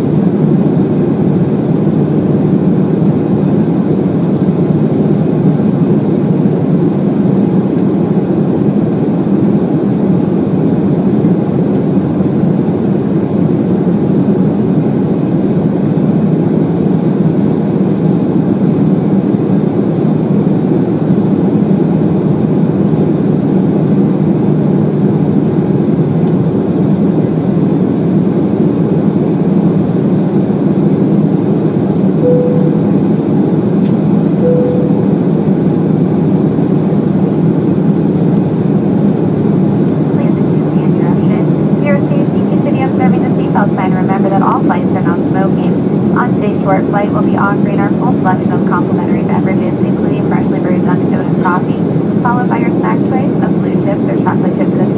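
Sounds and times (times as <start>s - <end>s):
airliner cabin engine rumble: 0.0s - 54.9s
brief tone: 32.2s - 33.5s, 34.4s - 35.6s.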